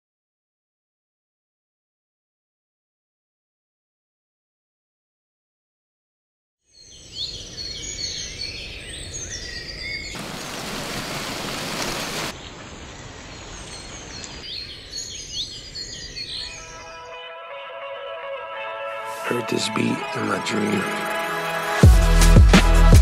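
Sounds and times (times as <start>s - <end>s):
birds chirping: 6.8s - 17.4s, 19.1s - 21.9s
loud even hiss: 10.2s - 12.4s.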